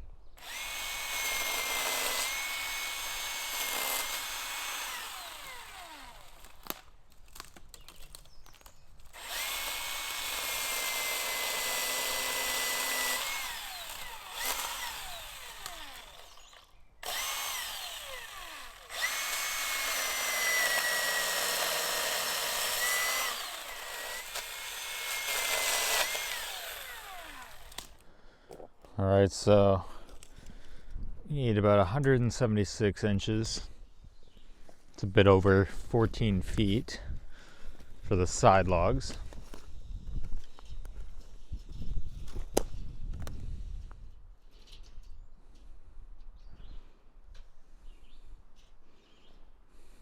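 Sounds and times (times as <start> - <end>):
electric chainsaw whine: 0.4 - 6.9, 9.1 - 28.0.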